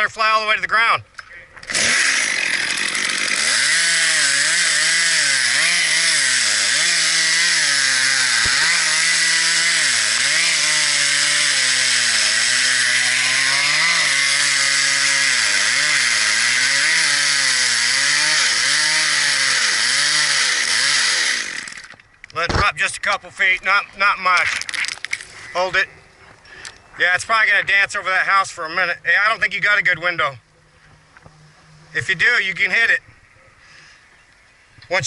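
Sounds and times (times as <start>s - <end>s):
chainsaw cutting wood: 1.6s - 22.0s.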